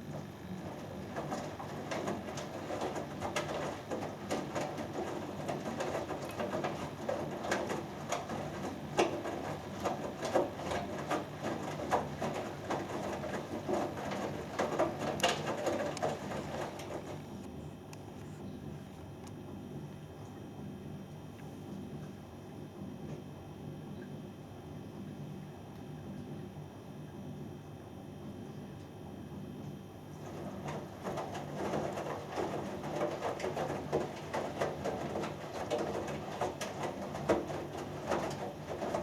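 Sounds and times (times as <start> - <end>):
laundry knocking and sloshing: 0.0 - 17.4, 30.2 - 39.0
washing machine drum tumbling: 0.0 - 17.4, 30.1 - 39.0
washing machine motor hum: 0.0 - 39.0.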